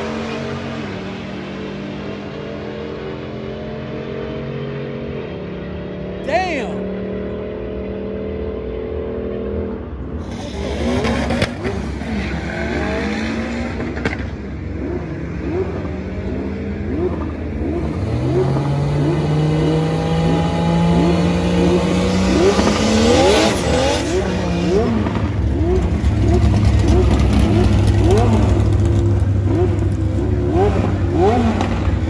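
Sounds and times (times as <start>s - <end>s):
engine holding raised rev: 10.2s - 32.0s.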